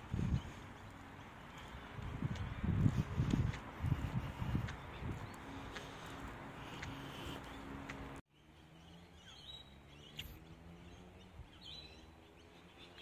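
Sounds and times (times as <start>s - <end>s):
faint outdoor ambience: 0.0s - 13.0s
high bird chirps: 6.8s - 13.0s.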